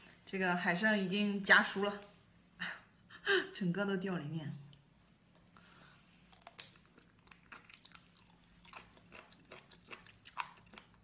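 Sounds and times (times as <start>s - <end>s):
crunchy chewing clicks: 6.3s - 11.0s.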